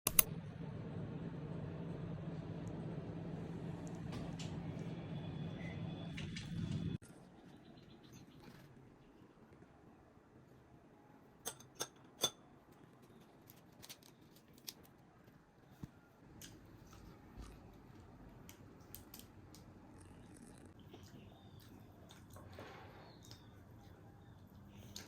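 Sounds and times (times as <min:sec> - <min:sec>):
sharp clicks: 0:00.0 - 0:00.3.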